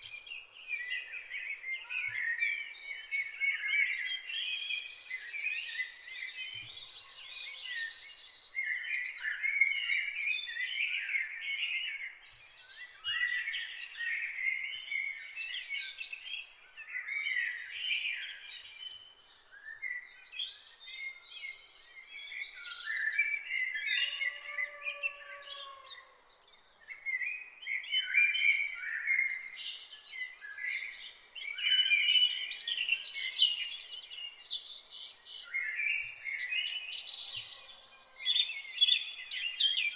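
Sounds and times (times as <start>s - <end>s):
chorus of songbirds: 0.0s - 39.9s
low drawn-out bird call: 24.0s - 26.2s.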